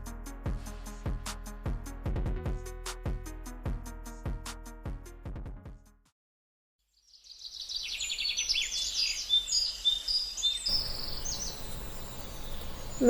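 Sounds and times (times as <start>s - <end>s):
birds chirping: 8.6s - 13.0s.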